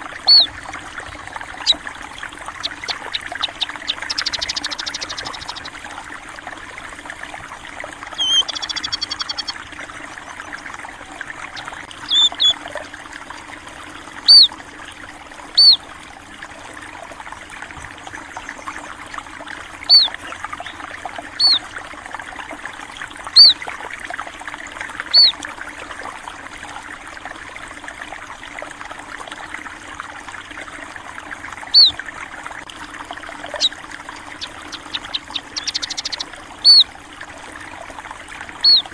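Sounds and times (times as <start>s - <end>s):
water trickling: 0.0s - 38.9s
small birds chirping: 0.1s - 5.8s, 8.0s - 9.6s, 11.3s - 12.6s, 14.3s - 14.5s, 15.6s - 15.8s, 19.8s - 21.7s, 23.4s - 23.6s, 25.1s - 25.4s, 31.7s - 32.0s, 33.3s - 36.9s, 38.6s - 38.9s.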